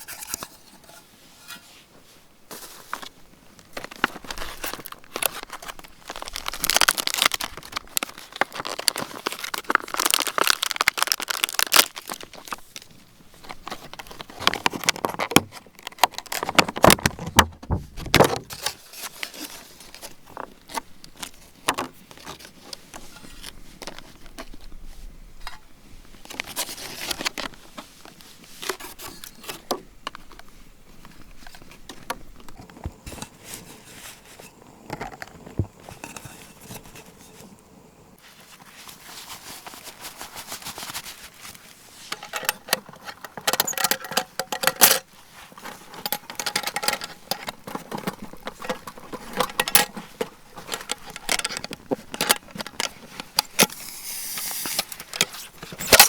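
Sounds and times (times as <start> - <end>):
rustling and clicks of handling: 0.0 - 56.0.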